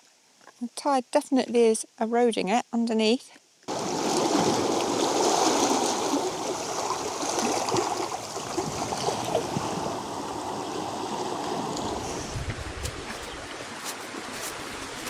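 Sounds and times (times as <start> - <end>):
stream running over rocks: 3.7 - 15.0.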